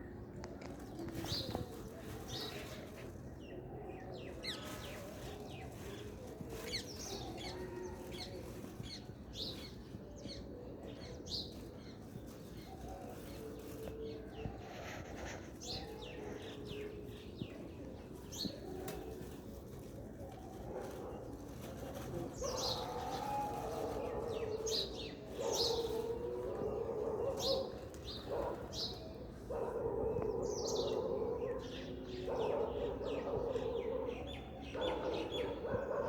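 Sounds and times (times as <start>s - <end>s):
pigeons cooing: 10.6s - 36.0s.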